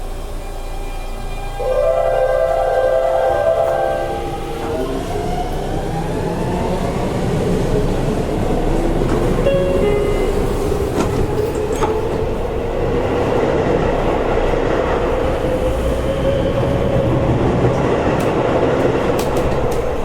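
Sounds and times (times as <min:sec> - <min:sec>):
train wheels rumbling on track: 0:00.0 - 0:20.0
wheels clicking on rail joints: 0:17.0 - 0:20.0.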